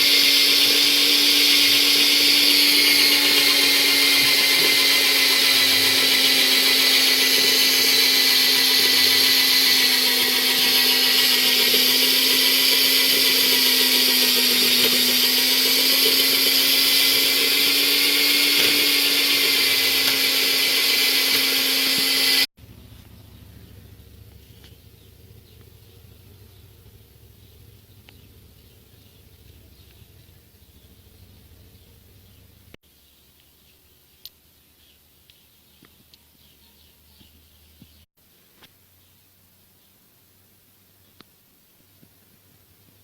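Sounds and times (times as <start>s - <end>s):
metal lathe whining: 0.0s - 22.5s.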